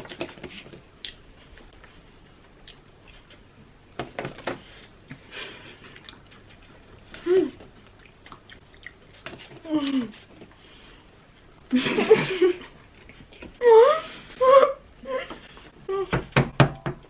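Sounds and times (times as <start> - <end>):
people chewing: 0.0 - 11.6.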